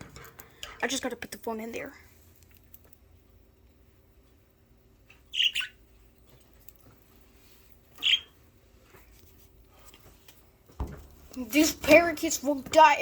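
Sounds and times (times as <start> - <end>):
budgerigars calling: 5.3 - 5.8, 8.0 - 8.3.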